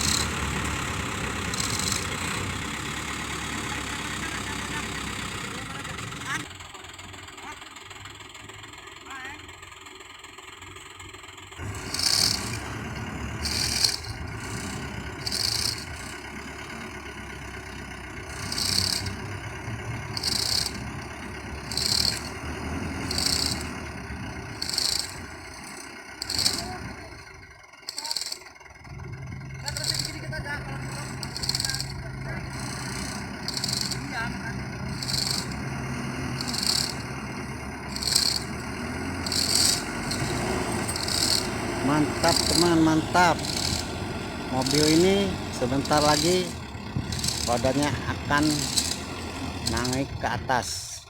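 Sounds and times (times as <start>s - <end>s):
short high-pitched rattle: 0.0s - 2.6s, 11.6s - 12.8s, 13.4s - 16.3s, 18.3s - 19.3s, 20.0s - 22.4s, 23.0s - 23.8s, 24.5s - 28.8s, 29.6s - 50.2s
diesel truck engine idling: 0.0s - 51.0s
short high rasp: 13.4s - 16.2s, 26.2s - 26.8s, 30.9s - 34.2s, 34.9s - 35.6s, 36.4s - 37.1s, 37.9s - 38.5s, 39.2s - 50.0s.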